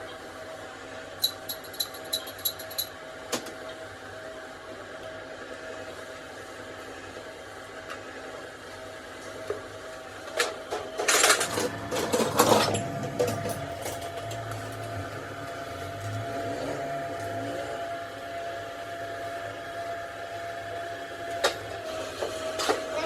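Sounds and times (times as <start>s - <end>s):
workshop hum: 0.0s - 4.8s, 6.8s - 23.0s
metal parts clattering: 11.0s - 14.9s.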